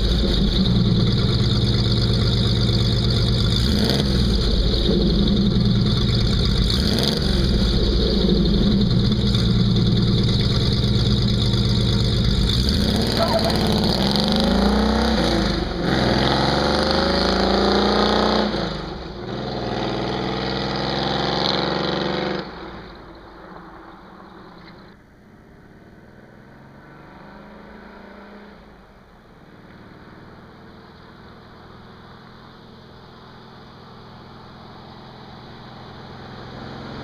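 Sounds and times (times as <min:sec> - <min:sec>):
loud engine accelerating: 0:00.0 - 0:23.1.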